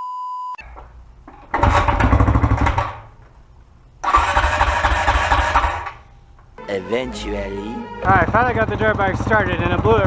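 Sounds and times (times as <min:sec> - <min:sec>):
dirt bike engine bursts: 0:01.5 - 0:03.1, 0:04.0 - 0:06.1, 0:08.0 - 0:10.0.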